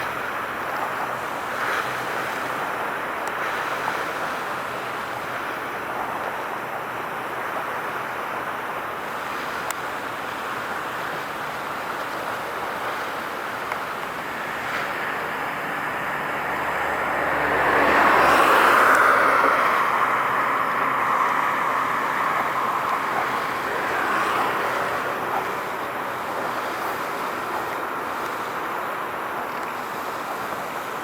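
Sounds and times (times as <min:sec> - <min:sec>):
vehicle passing: 0:14.1 - 0:28.5.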